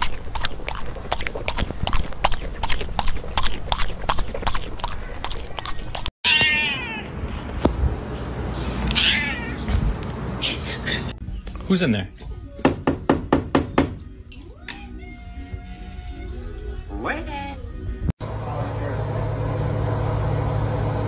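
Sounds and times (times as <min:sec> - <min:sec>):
koala chewing leaves: 0:00.0 - 0:06.1.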